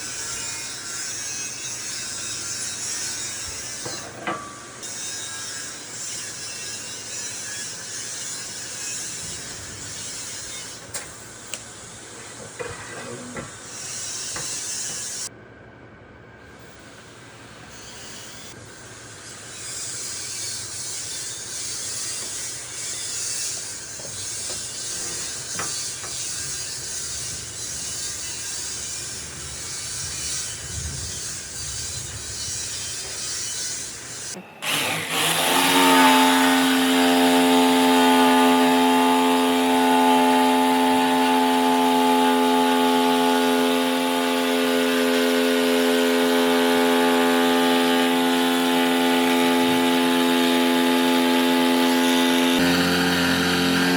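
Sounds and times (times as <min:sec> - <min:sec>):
power tool motor running: 0:16.6 - 0:53.9.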